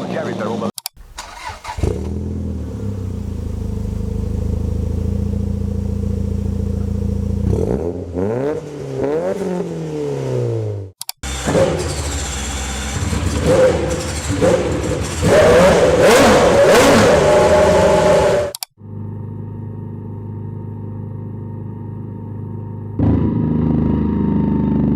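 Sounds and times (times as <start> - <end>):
different engine running: 0.0 - 24.9
race car engine revving: 1.0 - 18.6.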